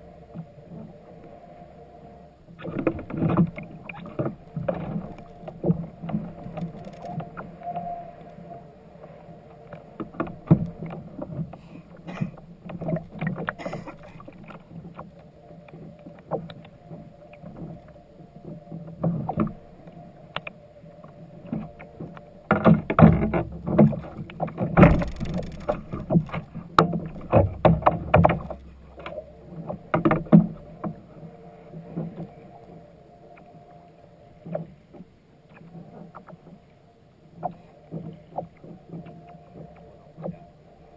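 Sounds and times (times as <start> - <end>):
water splashing: 23.0 - 29.2
knocks against kayak hull: 24.6 - 28.6.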